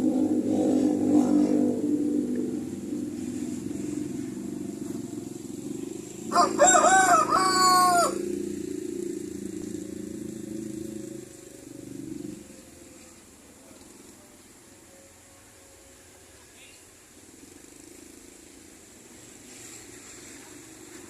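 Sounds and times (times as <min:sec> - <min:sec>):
low drone: 0:00.0 - 0:16.5
rooster crowing: 0:06.2 - 0:08.5.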